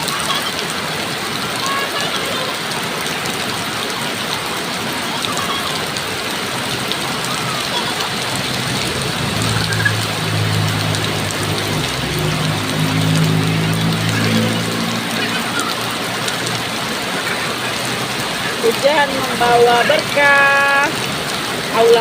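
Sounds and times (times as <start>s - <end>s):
heavy rain falling: 0.0s - 22.0s
low engine hum: 7.0s - 21.7s.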